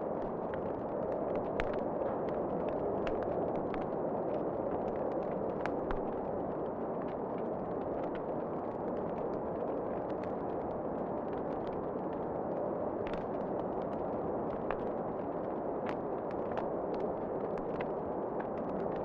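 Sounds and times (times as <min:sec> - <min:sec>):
wood fire crackling and popping: 0:00.1 - 0:19.0.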